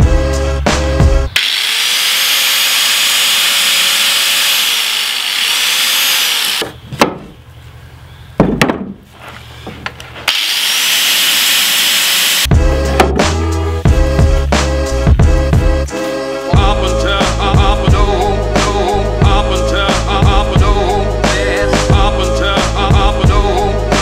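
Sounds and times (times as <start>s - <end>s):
angle grinder grinding steel: 1.3s - 6.7s, 10.3s - 12.5s
sharp knocks: 8.4s - 9.0s.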